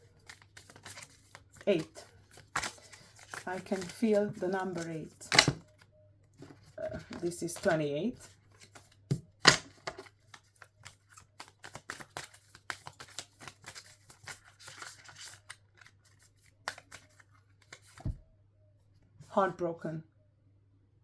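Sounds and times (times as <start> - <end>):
cards clicking and snapping: 4.7 - 5.6, 9.5 - 15.9.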